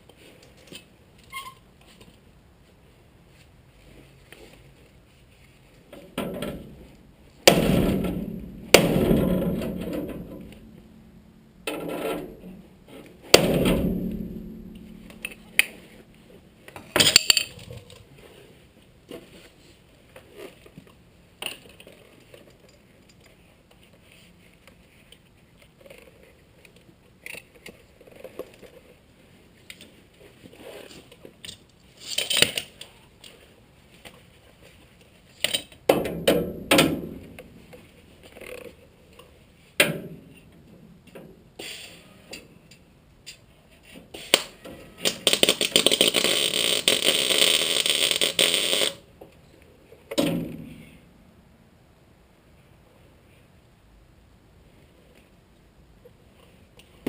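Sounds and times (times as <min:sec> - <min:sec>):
loud metallic bangs: 0:06.2 - 0:16.2
metal clank: 0:13.3 - 0:16.1
metal clinks taps and scrapes: 0:17.0 - 0:17.7.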